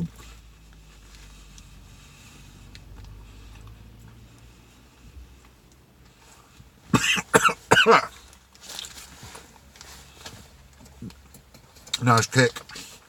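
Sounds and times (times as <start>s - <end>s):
man coughing: 6.9s - 8.2s.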